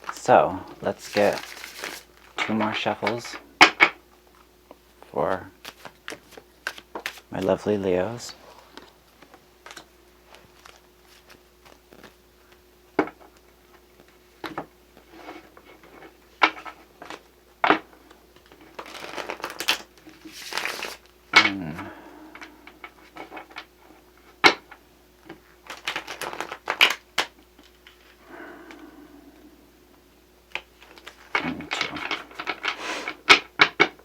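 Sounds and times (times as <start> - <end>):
cards being shuffled: 0.0 - 3.4, 5.3 - 13.4, 18.0 - 23.6, 25.3 - 28.2.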